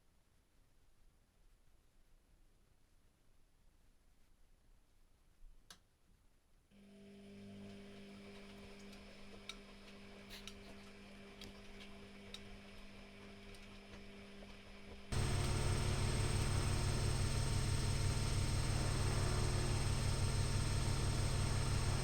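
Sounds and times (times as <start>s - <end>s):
washing machine humming: 15.1s - 22.0s.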